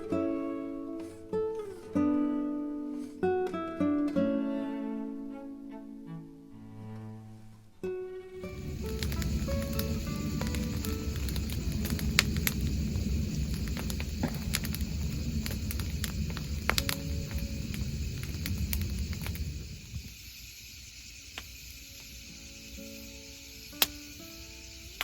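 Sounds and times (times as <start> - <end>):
bonfire flames rumbling: 8.4 - 21.8
fire crackles and pops: 8.4 - 25.0.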